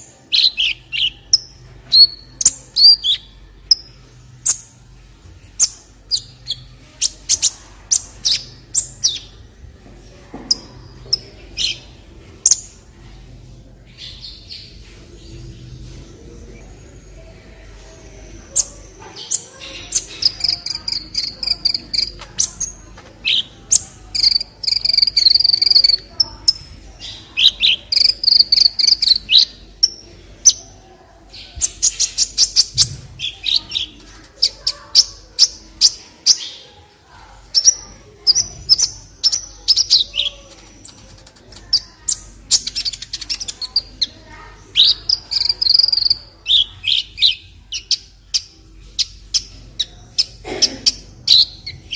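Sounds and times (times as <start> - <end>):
sunbird chirps and trills: 18.2 - 30.6.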